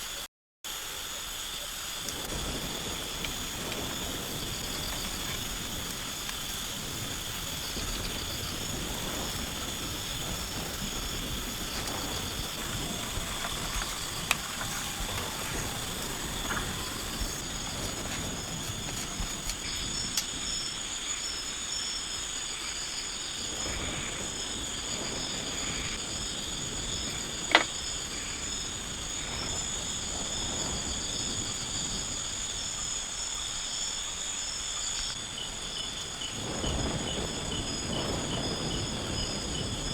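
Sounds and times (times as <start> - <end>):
background hiss: 0.0 - 39.8
insects buzzing and trilling: 0.0 - 39.9
faint ticks: 3.2 - 20.4.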